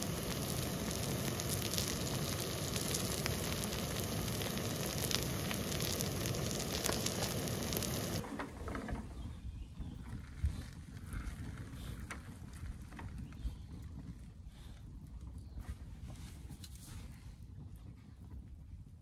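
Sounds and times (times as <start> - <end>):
noodles sizzling on a griddle: 0.0 - 8.2.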